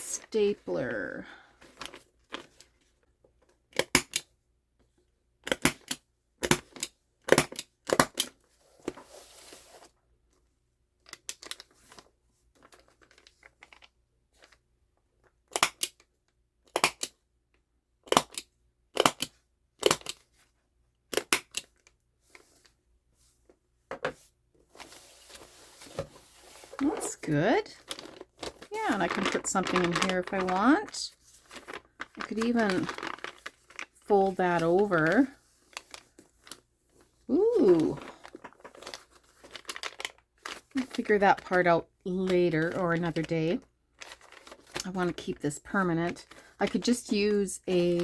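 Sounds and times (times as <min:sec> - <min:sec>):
stapler clicks: 0:16.7 - 0:17.1
paper rustling: 0:22.2 - 0:41.6, 0:44.0 - 0:47.1.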